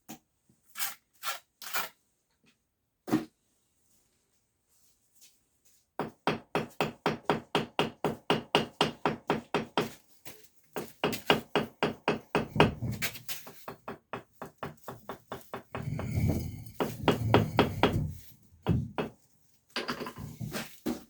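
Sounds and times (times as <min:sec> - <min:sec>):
hammer tapping on brick: 0:10.8 - 0:19.1.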